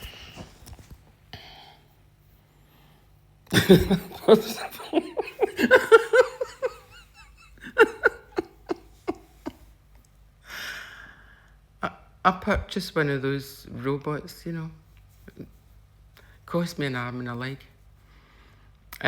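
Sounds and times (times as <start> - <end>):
person laughing heartily: 3.5 - 9.7.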